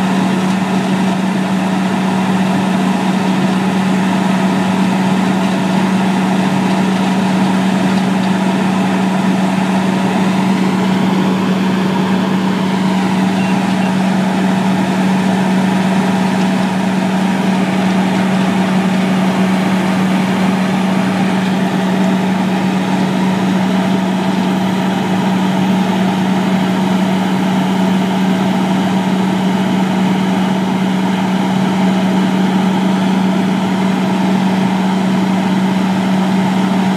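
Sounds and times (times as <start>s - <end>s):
engine running steadily: 0.0s - 36.9s.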